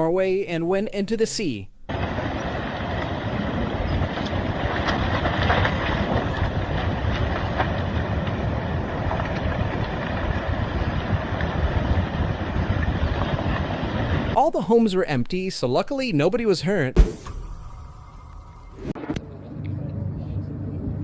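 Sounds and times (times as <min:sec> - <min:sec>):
debris cracks and crackles: 0:04.0 - 0:10.7.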